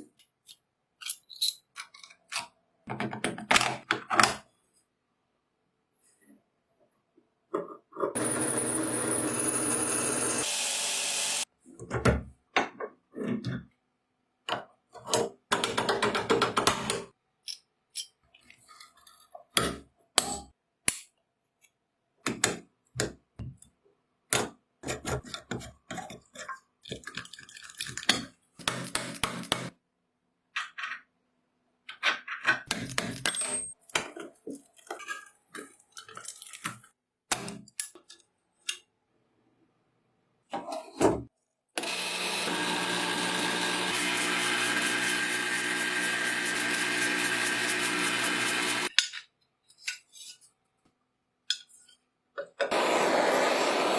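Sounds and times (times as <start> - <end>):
small metal parts clinking: 1.0 - 2.3.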